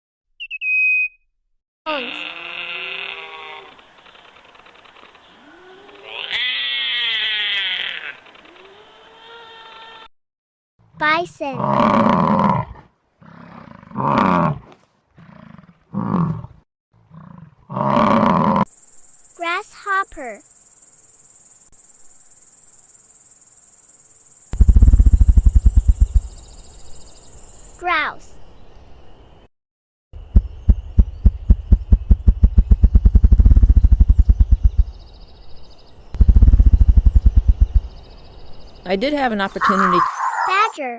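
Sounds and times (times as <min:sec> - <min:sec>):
grouse wing-beat drumming: 0:24.6 - 0:26.7, 0:30.2 - 0:35.0, 0:36.2 - 0:38.0.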